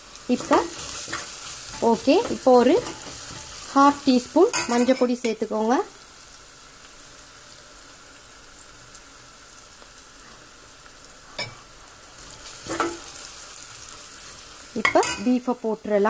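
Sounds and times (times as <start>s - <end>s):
onions sizzling in oil: 0.0s - 16.0s
stirring in pot: 0.3s - 3.8s.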